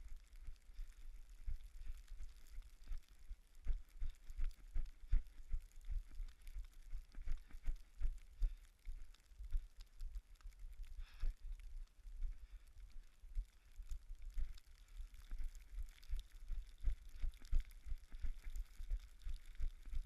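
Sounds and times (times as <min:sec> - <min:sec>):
running footsteps on snow: 0:00.0 - 0:09.8.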